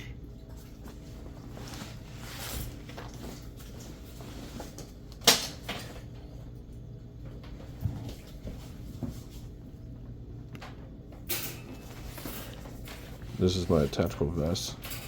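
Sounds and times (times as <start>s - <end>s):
handling and rustling: 0.6s - 6.1s, 11.4s - 15.0s.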